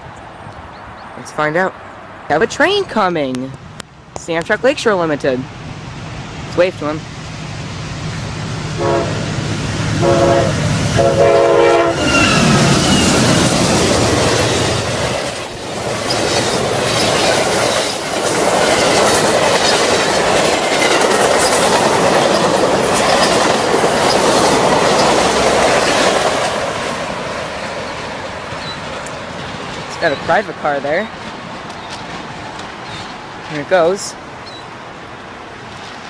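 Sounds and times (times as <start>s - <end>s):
train cars rushing past: 3.6s - 36.0s
train horn blasts: 8.7s - 12.6s
wheels clattering over rail joints: 12.0s - 33.9s.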